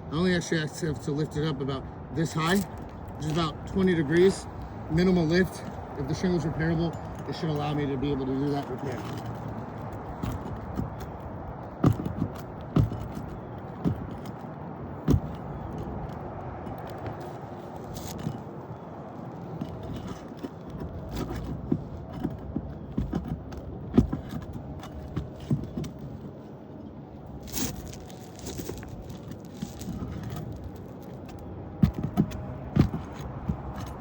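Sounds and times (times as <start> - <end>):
metal tool scraping shingles: 27.3 - 31.3.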